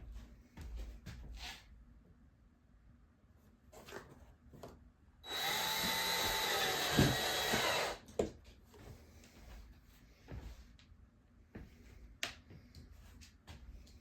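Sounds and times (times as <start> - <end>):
power drill driving a screw: 5.2 - 8.0
sharp click of drill: 5.3 - 8.0.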